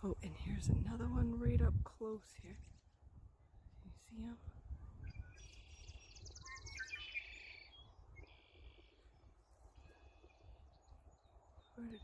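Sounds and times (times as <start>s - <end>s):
blackbird singing buzzy trill: 4.9s - 12.0s.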